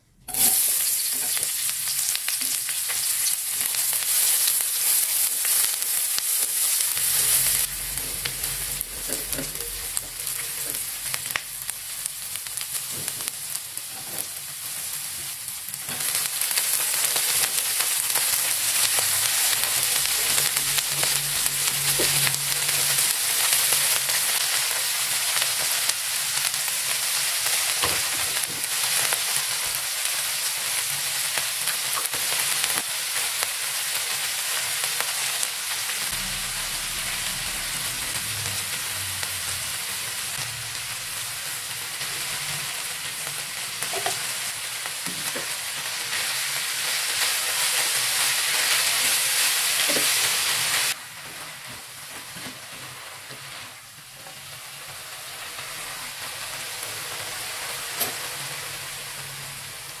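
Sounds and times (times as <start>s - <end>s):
greens sizzling in a wok: 0.3s - 60.0s
spatula scraping a wok: 6.3s - 11.6s, 16.9s - 25.7s.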